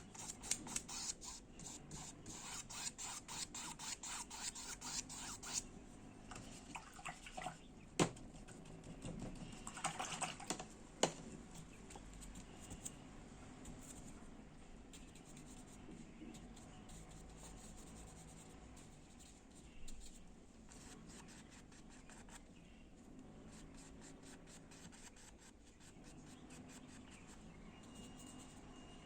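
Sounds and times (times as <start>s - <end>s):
paintbrush scratchy strokes: 0.0s - 5.6s, 14.9s - 22.4s, 23.5s - 28.7s.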